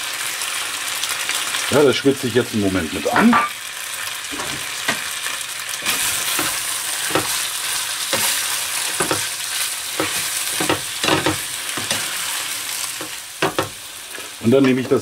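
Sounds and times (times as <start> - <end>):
chicken and onion sizzling: 0.0 - 15.0
spatula scraping a pan: 5.8 - 15.0.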